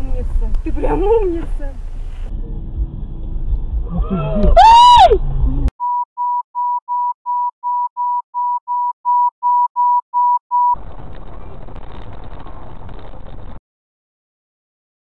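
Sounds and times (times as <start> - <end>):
car driving rumble: 0.0 - 5.7, 10.8 - 13.6
short electronic beeps: 5.8 - 10.8.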